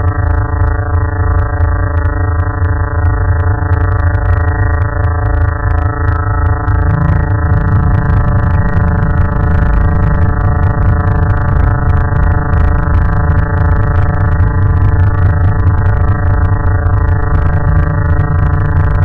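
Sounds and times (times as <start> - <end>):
electronic drone hum: 0.0 - 19.0
faint crackles: 2.0 - 19.0
heavy low rumble: 5.6 - 19.0.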